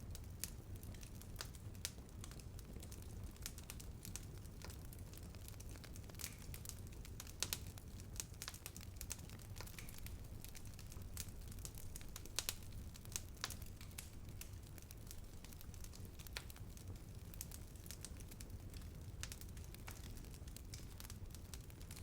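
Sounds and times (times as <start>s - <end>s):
burning wood crackling and popping: 0.0s - 22.0s
low rumble of flames: 0.0s - 22.0s.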